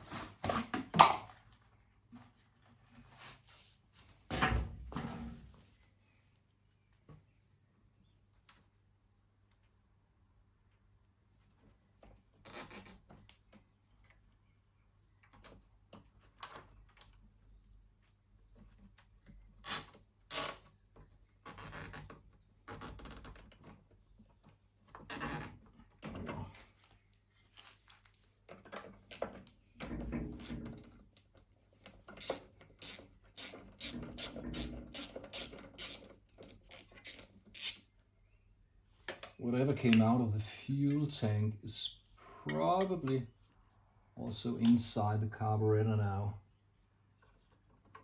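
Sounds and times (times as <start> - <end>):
tools rubbing and scraping: 29.9 - 37.9.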